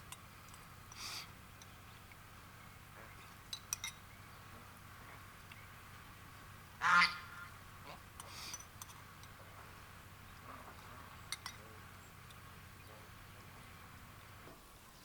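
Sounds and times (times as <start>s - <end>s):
light clinks: 3.2s - 4.0s, 11.3s - 12.4s
duck quacking: 6.8s - 8.0s.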